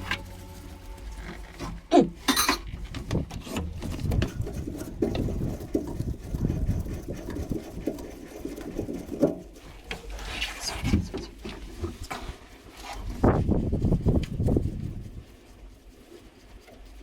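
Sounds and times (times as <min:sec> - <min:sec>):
low steady hum: 0:00.0 - 0:08.0
clicking and knocking on engine parts: 0:01.6 - 0:10.2.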